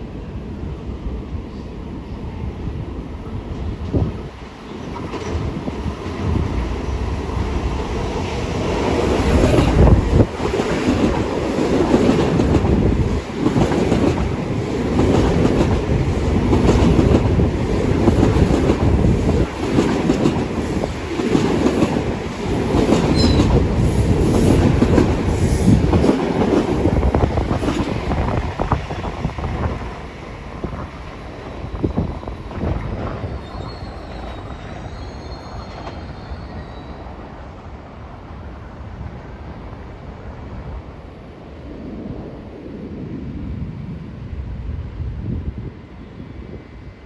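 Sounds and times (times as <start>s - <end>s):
train wheels rushing over rails: 2.8s - 47.0s
wheels clacking on rails: 3.3s - 37.4s.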